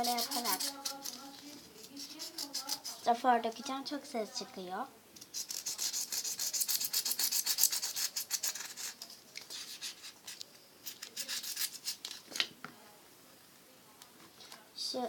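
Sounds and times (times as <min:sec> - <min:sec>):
styrofoam rubbed and crumbled: 0:00.0 - 0:03.1, 0:05.3 - 0:12.2.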